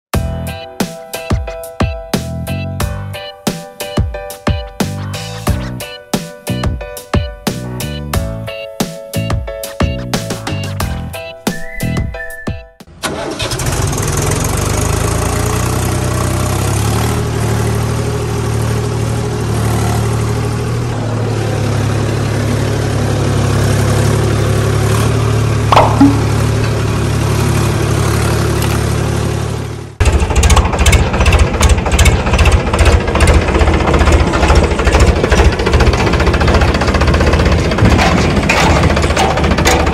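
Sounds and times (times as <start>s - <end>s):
tractor engine running: 12.9s - 39.9s
fast chugging rattle: 30.0s - 39.9s.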